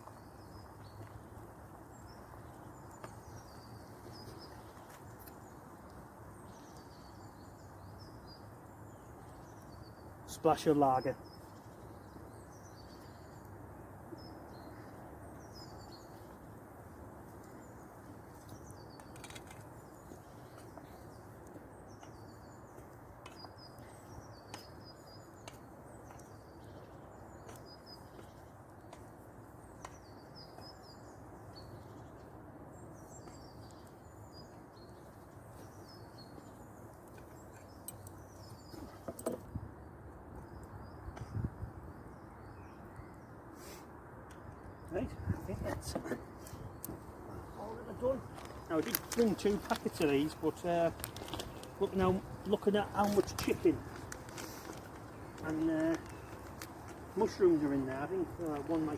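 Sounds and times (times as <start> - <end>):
small birds chirping: 0.0 - 58.9
steady low hiss: 39.6 - 58.9
faint crackles: 45.9 - 58.9.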